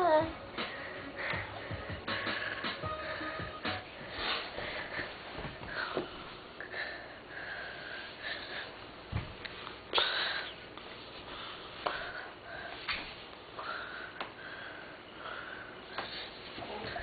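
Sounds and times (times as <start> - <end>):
soft rustles: 4.0 - 6.5.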